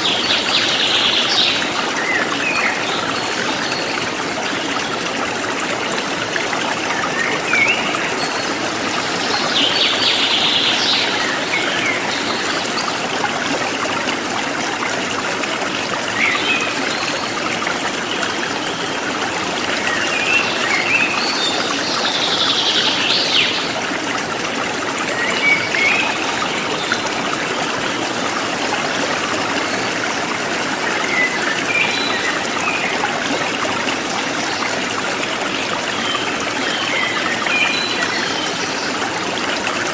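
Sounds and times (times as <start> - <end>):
forest stream flowing: 0.0 - 39.9
bird songs: 6.9 - 13.0, 19.8 - 23.8, 30.8 - 33.1, 35.4 - 39.0.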